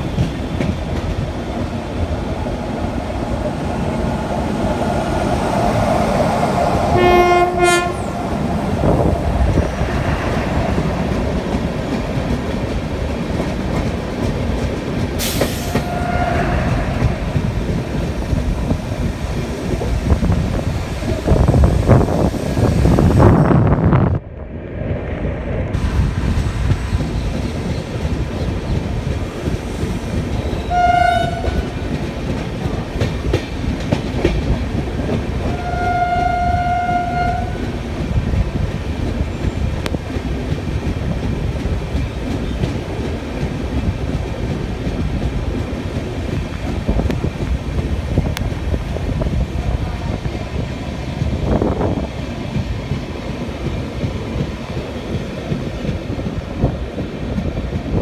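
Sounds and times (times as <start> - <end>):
train wheels rumbling and rattling: 0.0 - 58.0
train horn blasts: 6.9 - 8.2, 15.7 - 16.9, 30.6 - 31.8, 35.5 - 37.7.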